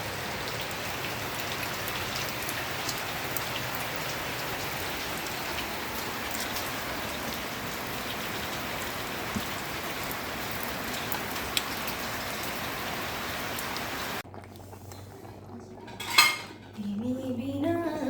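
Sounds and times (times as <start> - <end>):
steady rain falling: 0.0 - 14.3.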